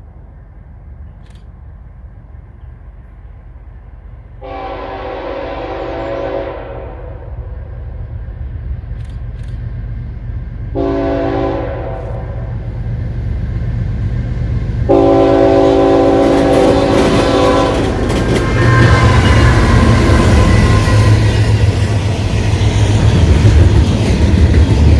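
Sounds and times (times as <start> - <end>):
diesel locomotive rumble: 0.0 - 24.9
rail and wheel clatter: 0.0 - 24.9
train air horn blasts: 4.4 - 7.8, 10.8 - 12.7, 14.9 - 21.9.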